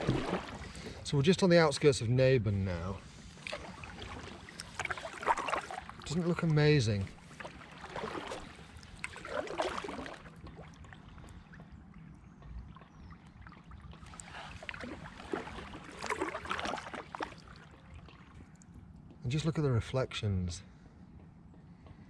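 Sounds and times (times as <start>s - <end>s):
kayak paddle splashing in water: 0.0s - 1.0s, 3.0s - 11.4s, 13.0s - 18.4s
water dripping from paddle: 0.0s - 1.0s, 3.4s - 6.6s, 7.2s - 18.8s.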